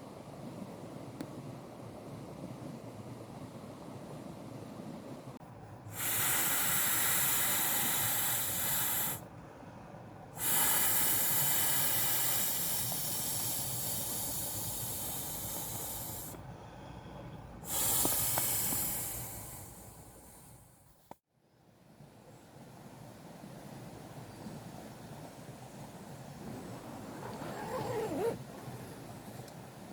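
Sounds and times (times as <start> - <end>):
loud hissing bursts: 5.9 - 9.2, 10.4 - 16.4, 17.6 - 20.7.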